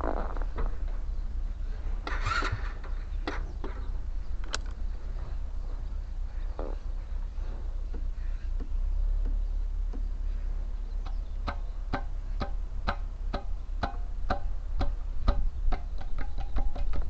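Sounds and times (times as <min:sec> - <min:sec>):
steady low rumble: 0:00.0 - 0:17.0
sharp clicks: 0:04.4 - 0:04.8.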